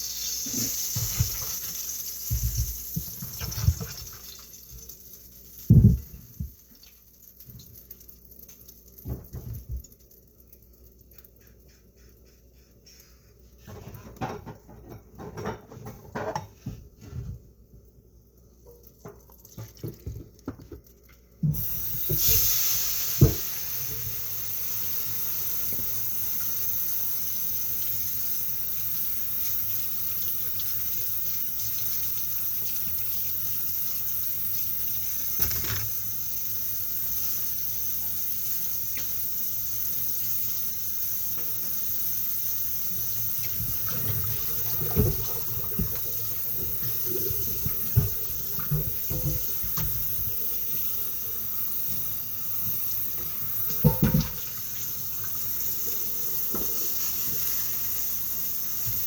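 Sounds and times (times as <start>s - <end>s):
tap water running into sink: 0.0s - 10.2s, 18.7s - 59.0s
dishes knocking in sink: 53.8s - 54.5s.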